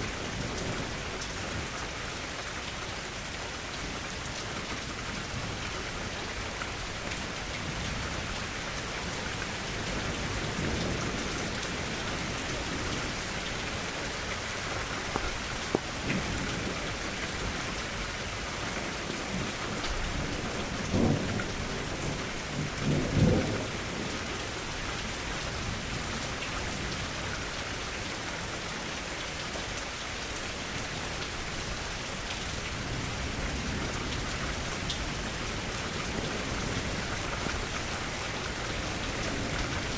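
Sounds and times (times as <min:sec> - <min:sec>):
steady rain falling: 0:00.0 - 0:39.9
thunder rumbles: 0:09.1 - 0:17.8, 0:19.2 - 0:24.8.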